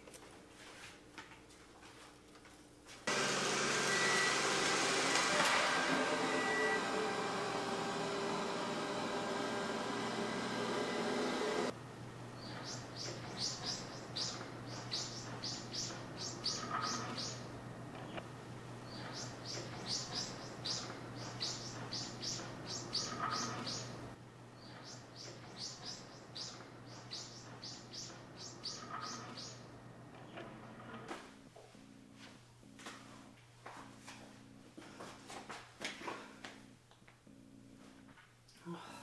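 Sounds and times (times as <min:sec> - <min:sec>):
robot vacuum motor hum: 0:03.1 - 0:11.8
bird singing high chirps: 0:12.4 - 0:17.5, 0:18.8 - 0:24.0, 0:24.6 - 0:29.7.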